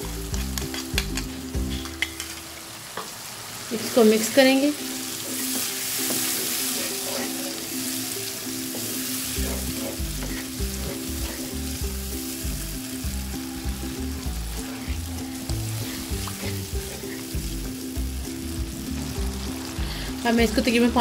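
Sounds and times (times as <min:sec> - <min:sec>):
background music with bass line: 0:00.0 - 0:02.0, 0:09.1 - 0:21.0
masala sizzling in oil: 0:00.0 - 0:21.0.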